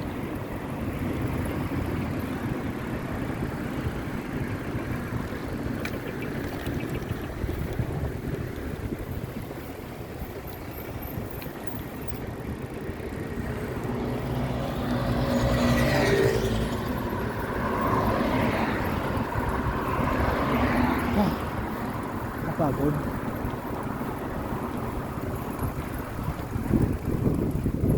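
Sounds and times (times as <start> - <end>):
wind and road noise: 0.0 - 27.9
vehicle passing by: 12.4 - 27.2.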